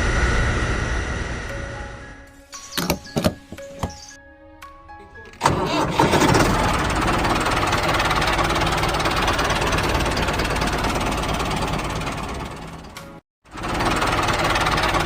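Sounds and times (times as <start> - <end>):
small engine knocking: 5.5 - 15.0.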